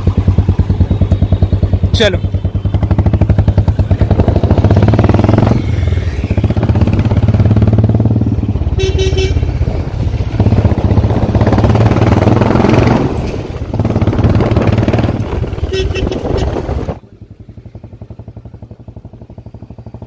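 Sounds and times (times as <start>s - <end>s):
motorcycle engine running: 0.0s - 20.0s
vehicle horn honk: 8.7s - 9.5s, 15.6s - 16.7s.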